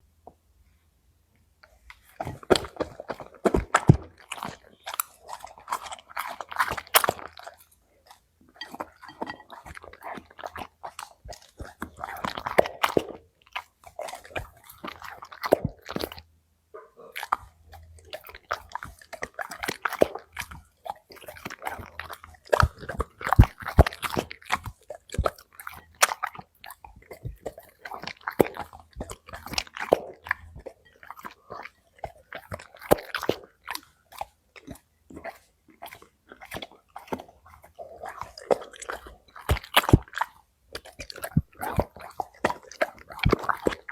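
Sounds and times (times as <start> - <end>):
dog chewing and crunching food: 1.6 - 43.9.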